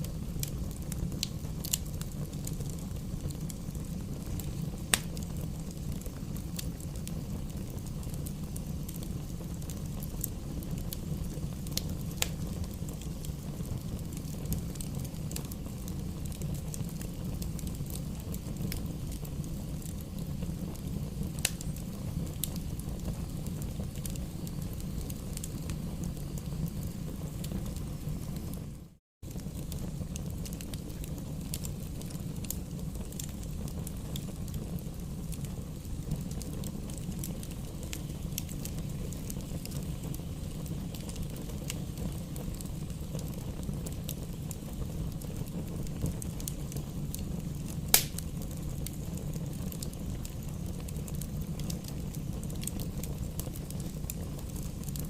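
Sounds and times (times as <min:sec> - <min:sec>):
low rumble of flames: 0:00.0 - 0:55.0
wood popping and crackling: 0:00.4 - 0:09.0, 0:29.3 - 0:55.0.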